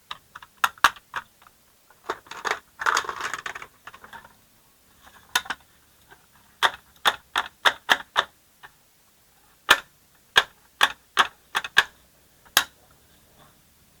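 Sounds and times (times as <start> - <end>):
sharp irregular clicks and knocks: 0.0 - 4.3, 5.0 - 8.8, 9.7 - 12.8.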